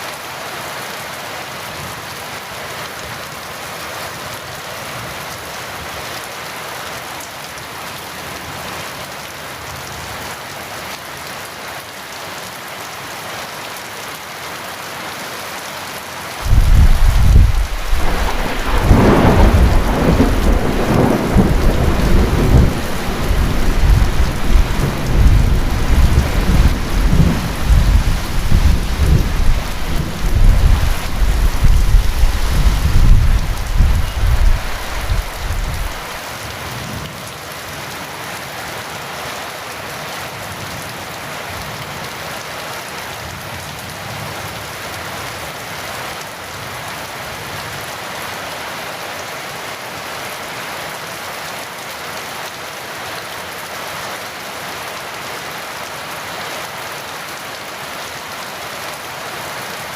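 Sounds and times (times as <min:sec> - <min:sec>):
heavy rain hissing: 0:14.8 - 0:39.0
thunder cracking and rumbling: 0:16.4 - 0:36.1.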